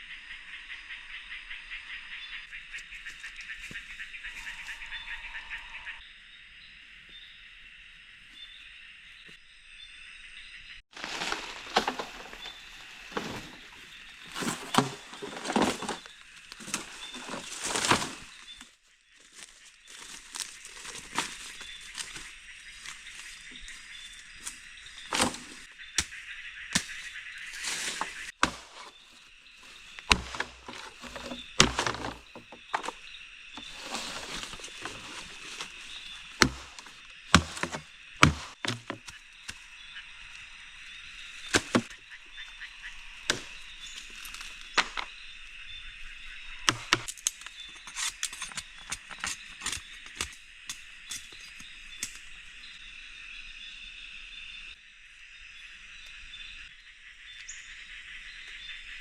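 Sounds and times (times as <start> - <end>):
sharp knocks and thunks: 25.1 - 26.2, 27.9 - 29.0, 29.9 - 33.0, 33.6 - 39.2, 41.5 - 42.0, 46.7 - 47.1.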